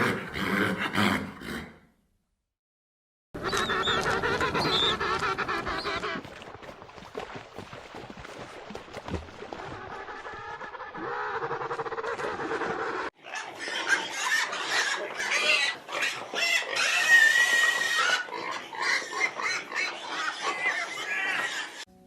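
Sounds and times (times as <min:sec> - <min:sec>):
pigs squealing: 0:03.4 - 0:06.2, 0:09.5 - 0:21.9.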